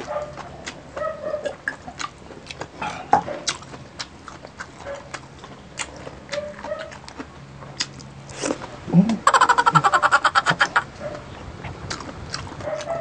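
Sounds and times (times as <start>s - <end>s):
crunching and chewing: 0.0s - 13.0s
wet mouth clicks: 11.6s - 12.9s.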